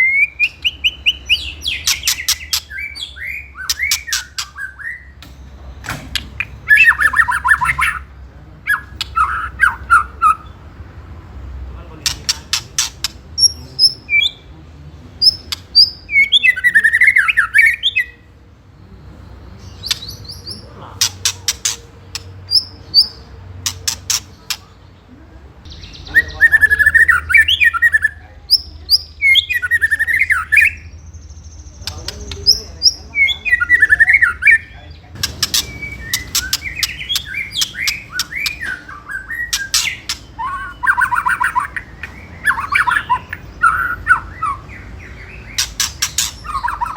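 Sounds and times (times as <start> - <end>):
bird whistled song phrases: 0.0 - 5.2, 6.6 - 8.1, 8.7 - 10.6, 15.2 - 18.3, 25.7 - 31.0, 32.8 - 46.9
bird rattling clicks: 23.7 - 24.6, 35.2 - 38.6.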